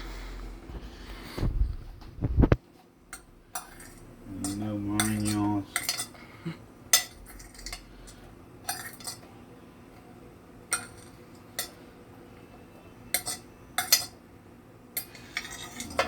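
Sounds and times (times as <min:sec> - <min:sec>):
metal utensils clinking on cookware: 0:03.1 - 0:06.2, 0:06.9 - 0:09.4, 0:10.7 - 0:11.8, 0:13.1 - 0:14.2, 0:15.0 - 0:16.0.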